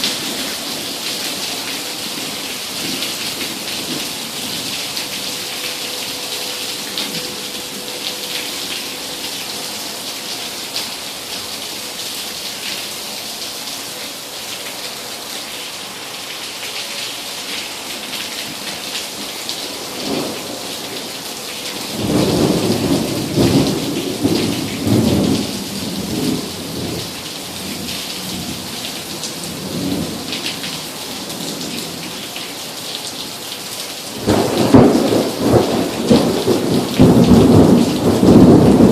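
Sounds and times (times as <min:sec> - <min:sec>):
heavy rain: 0:00.0 - 0:38.9
thunder rumbling: 0:21.8 - 0:28.5, 0:34.2 - 0:38.9.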